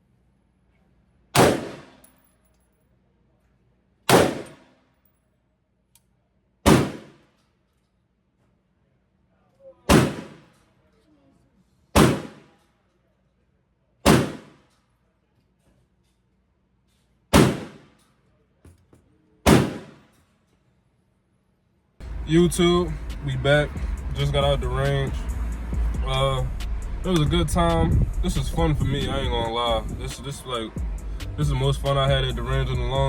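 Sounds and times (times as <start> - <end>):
gunshots with ringing echo: 1.4 - 2.0, 4.1 - 4.7, 6.7 - 7.2, 9.9 - 10.5, 12.0 - 12.5, 14.1 - 14.6, 17.3 - 17.9, 19.5 - 20.1.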